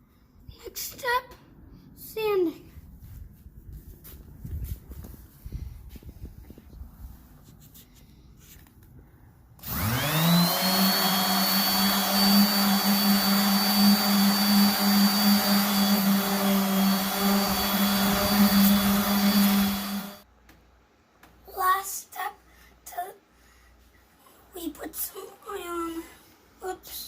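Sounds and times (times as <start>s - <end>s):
electric sander on steel: 9.6s - 20.2s.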